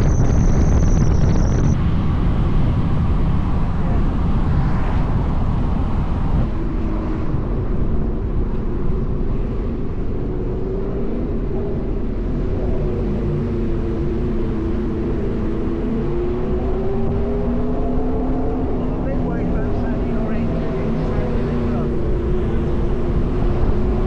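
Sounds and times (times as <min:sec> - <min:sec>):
car engine while driving: 0:00.0 - 0:24.0
road noise: 0:00.0 - 0:24.0.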